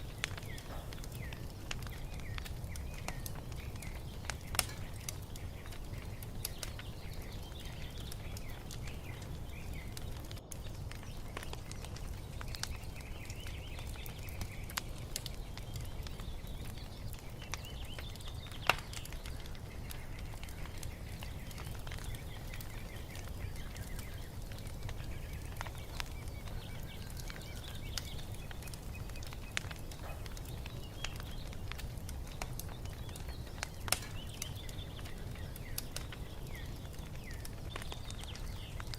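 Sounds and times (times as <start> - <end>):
birds chirping faintly: 0.0 - 38.9
fire pops: 0.0 - 38.9
wood fire crackling: 0.0 - 38.9.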